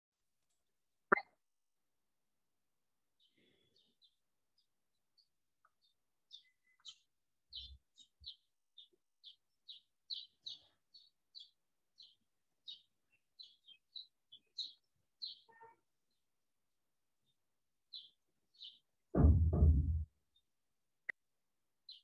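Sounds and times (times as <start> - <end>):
small bird chirping: 3.2 - 16.2, 17.9 - 18.9
soft low thump: 19.2 - 20.0.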